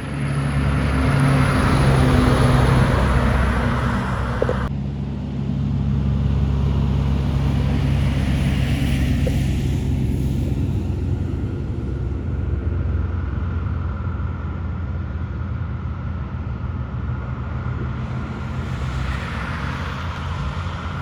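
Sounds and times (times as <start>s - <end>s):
truck diesel engine running: 0.0s - 4.7s.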